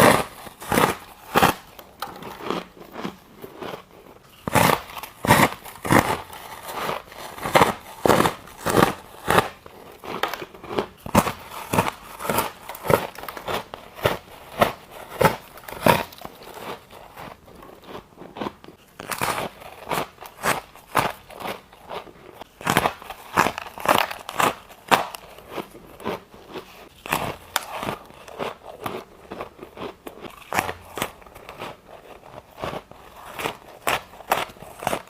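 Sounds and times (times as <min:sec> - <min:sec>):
ice being chewed: 0:00.0 - 0:35.0.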